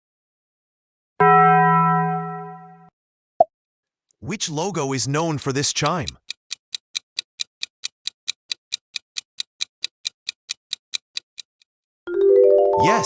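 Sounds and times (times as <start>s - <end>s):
clock ticking: 5.1s - 11.7s.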